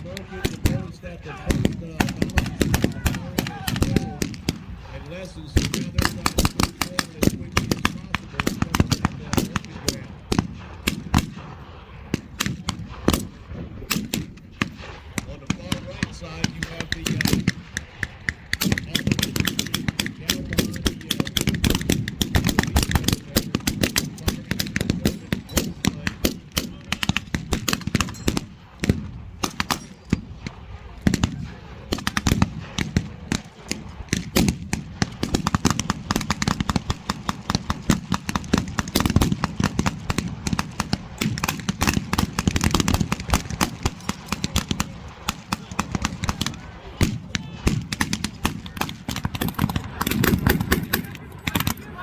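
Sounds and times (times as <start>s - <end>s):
rifle shots: 0.0s - 52.0s
machine-gun bursts: 47.8s - 52.0s.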